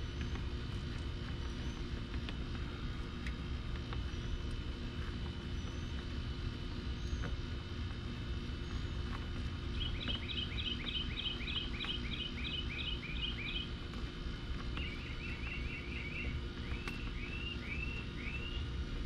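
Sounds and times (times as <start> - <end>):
bird chirping rapidly: 9.7 - 13.8, 14.8 - 18.7
bird trill and slurred notes: 9.7 - 13.8, 14.8 - 18.7.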